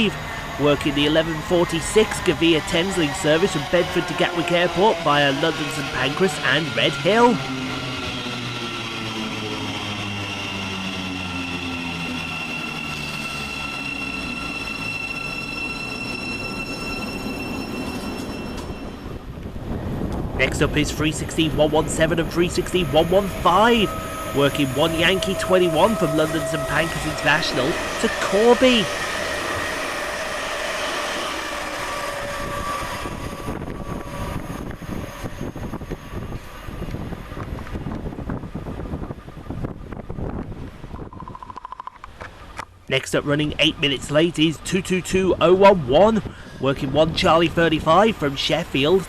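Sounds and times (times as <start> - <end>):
train brakes squealing: 0.0 - 19.5, 20.6 - 37.5
steady whining tones: 0.0 - 49.0.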